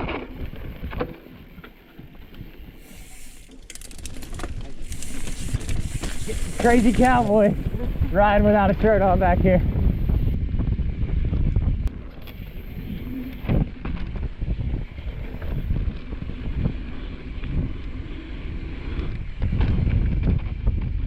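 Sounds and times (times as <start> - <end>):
bike knocking and rattling: 0.0 - 16.9, 19.0 - 21.0
bike tyres on dirt trail: 0.0 - 21.0
wind rushing over microphone: 4.2 - 21.0.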